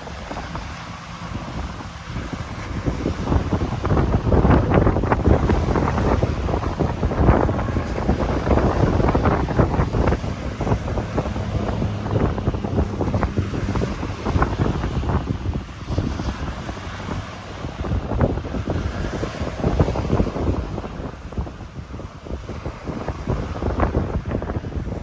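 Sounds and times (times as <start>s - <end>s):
sea waves rushing: 0.0s - 25.0s
wind buffeting microphone: 0.0s - 25.0s.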